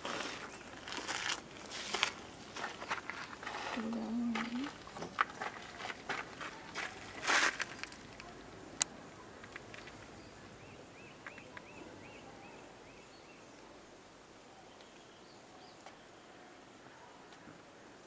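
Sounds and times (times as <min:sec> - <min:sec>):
bird chirping: 0:09.2 - 0:13.6.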